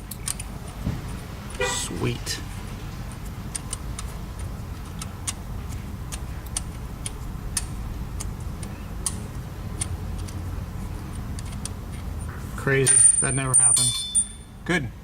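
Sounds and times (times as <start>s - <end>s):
steady low hum: 0.0s - 15.0s
hand ratchet clicking: 3.1s - 10.4s.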